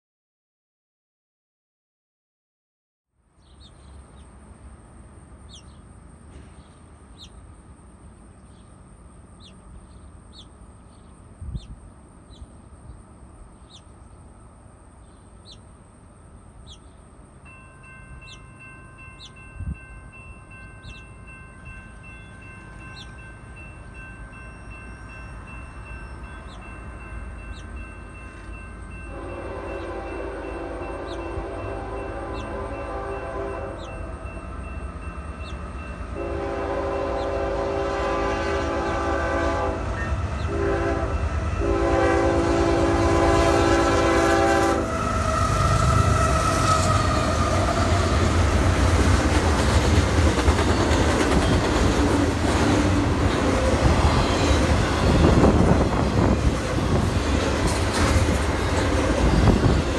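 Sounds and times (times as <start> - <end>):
bird chirping: 3.4 - 4.4, 5.4 - 17.2, 18.1 - 19.6, 20.6 - 21.2, 21.9 - 23.3, 35.3 - 35.7
train rumble: 3.5 - 59.9
train horn: 29.0 - 34.7, 36.1 - 49.0, 50.4 - 59.9.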